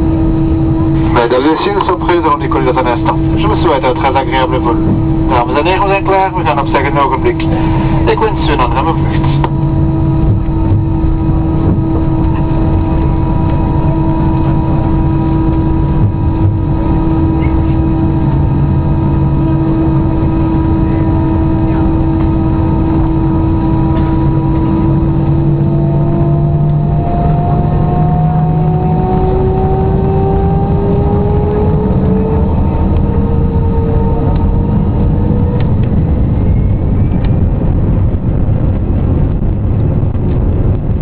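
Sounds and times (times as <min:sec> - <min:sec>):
jet engine whine: 0:00.0 - 0:41.0
low rumble: 0:00.0 - 0:41.0.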